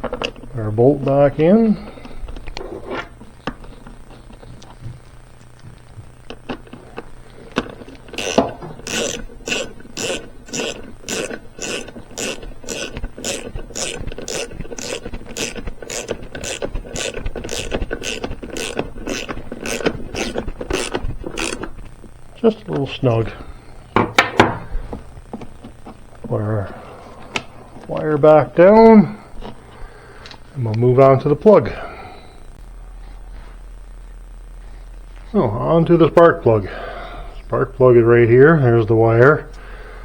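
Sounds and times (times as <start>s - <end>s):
ratchet wrench clicking: 8.1s - 21.7s.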